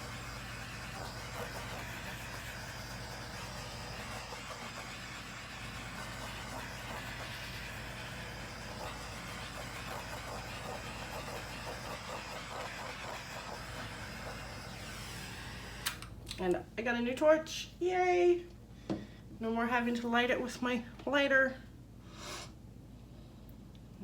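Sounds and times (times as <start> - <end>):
butane torch hissing: 0.0 - 16.1.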